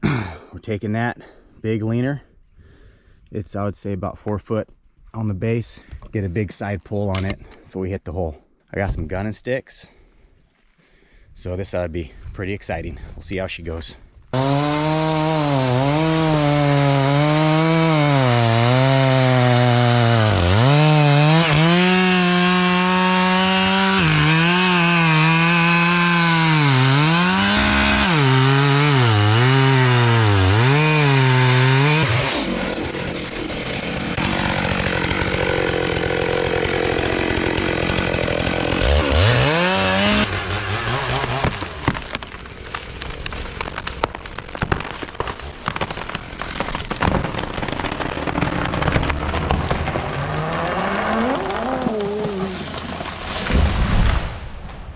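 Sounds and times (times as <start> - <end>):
chainsaw running at high revs: 14.4 - 42.7, 43.3 - 53.1
rushing crackling noise: 41.6 - 54.9.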